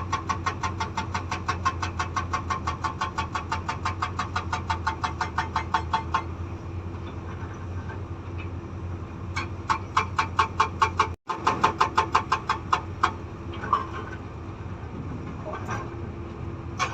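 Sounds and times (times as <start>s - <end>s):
hydraulic breaker hammering stone: 0.0s - 6.4s, 9.4s - 13.9s
excavator diesel engine running: 0.0s - 16.9s.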